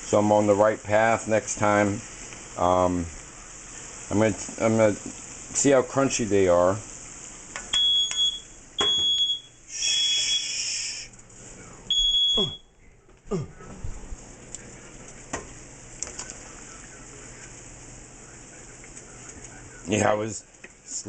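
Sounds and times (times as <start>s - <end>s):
faint hiss with crackles: 0.0s - 21.0s
electronic alarm beeping: 7.7s - 10.6s, 11.9s - 12.7s.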